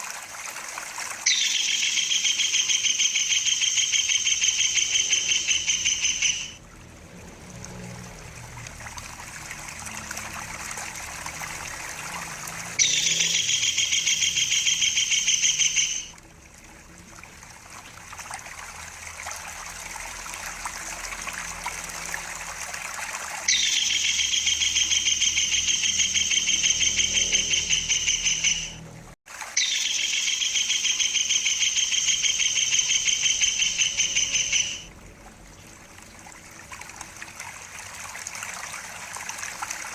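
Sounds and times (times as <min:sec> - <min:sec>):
water trickling: 0:00.0 - 0:39.9
kingfisher rolling trill: 0:01.2 - 0:06.6, 0:12.5 - 0:16.1, 0:23.5 - 0:28.8, 0:29.6 - 0:34.9.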